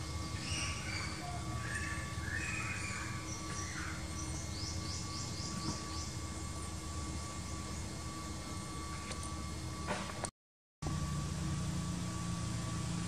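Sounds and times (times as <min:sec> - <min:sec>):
outdoor hum and low rumble: 0:00.0 - 0:13.0
bird chirping: 0:00.2 - 0:06.2.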